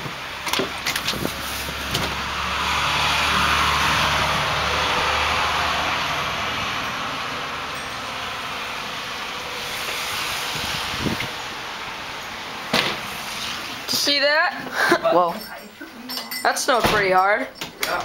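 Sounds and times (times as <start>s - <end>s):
vehicle driving past: 1.2s - 13.8s.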